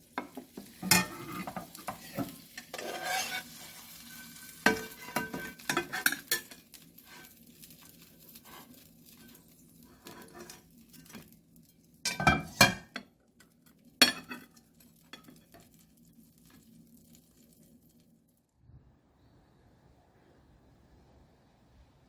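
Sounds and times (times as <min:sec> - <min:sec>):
dishes and utensils clinking: 0:00.2 - 0:07.3, 0:12.1 - 0:13.1, 0:14.0 - 0:15.6.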